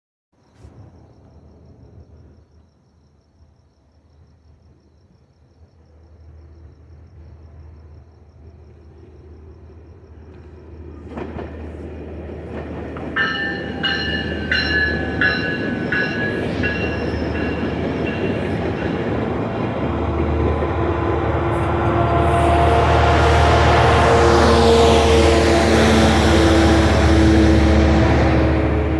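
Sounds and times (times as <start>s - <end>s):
train rumble: 5.6s - 28.9s
bell ringing: 13.1s - 19.6s.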